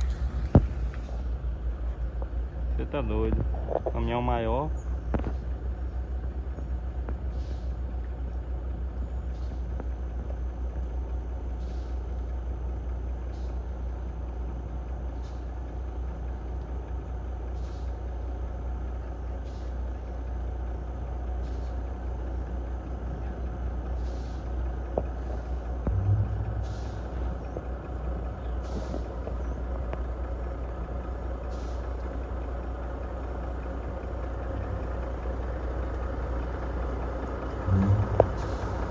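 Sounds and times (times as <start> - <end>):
heavy truck engine running: 0.0 - 38.9
short louder sound: 25.9 - 27.4, 37.7 - 38.6.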